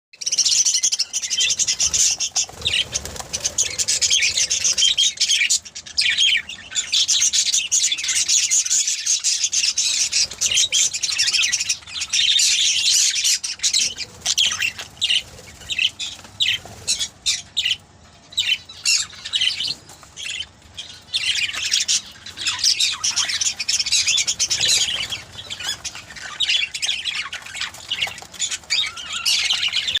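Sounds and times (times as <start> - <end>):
budgerigars chirping and chattering: 0.2 - 30.0.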